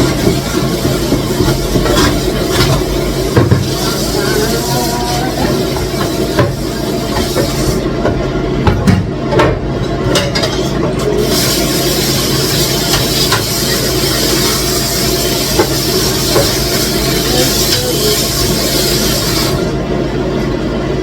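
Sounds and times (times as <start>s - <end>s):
stew hissing in a pot: 0.0s - 7.9s, 11.2s - 19.8s.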